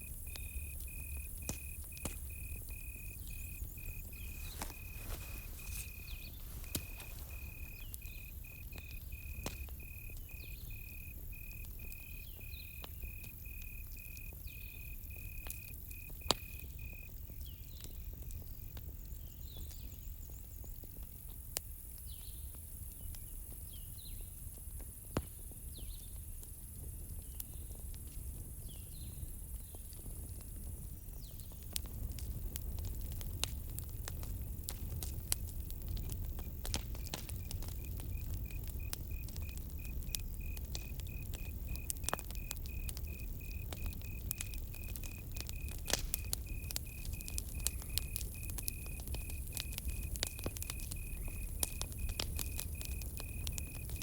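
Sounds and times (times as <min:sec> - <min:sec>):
cricket chirping: 0:00.0 - 0:17.8, 0:34.2 - 0:54.0
campfire crackling: 0:00.0 - 0:22.2, 0:26.2 - 0:54.0.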